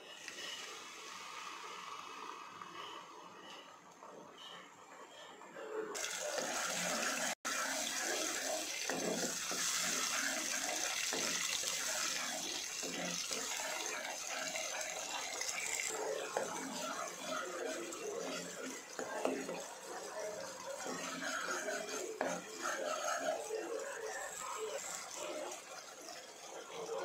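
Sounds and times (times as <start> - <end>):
puree sizzling in hot oil: 0.0 - 3.1, 6.0 - 27.0
metal spatula stirring: 6.0 - 27.0.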